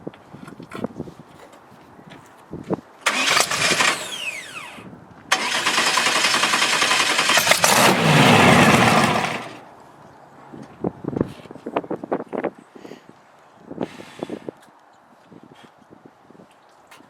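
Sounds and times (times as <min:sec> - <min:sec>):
dragster engine roaring: 0:03.1 - 0:09.6.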